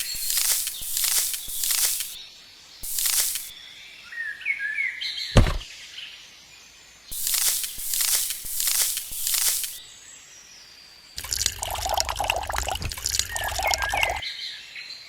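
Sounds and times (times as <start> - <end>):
short hissing scraping strokes: 0.0 - 2.2, 2.8 - 3.5, 7.1 - 9.8
small birds chirping: 0.0 - 2.2, 2.8 - 3.6, 7.1 - 14.2
dull thump: 5.4 - 5.7.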